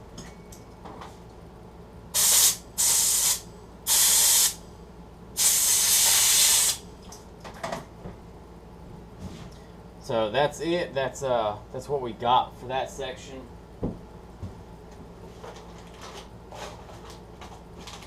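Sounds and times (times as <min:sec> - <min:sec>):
compressed air hissing blasts: 0:02.2 - 0:04.6, 0:05.4 - 0:06.8.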